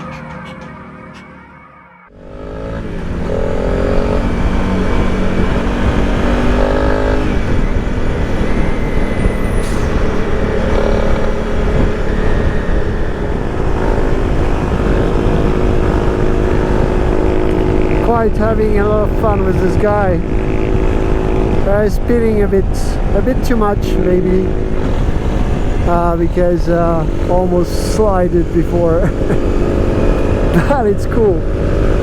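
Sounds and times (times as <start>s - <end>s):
motorcycle engine accelerating: 0.0s - 32.0s
wind rush on microphone: 2.8s - 32.0s.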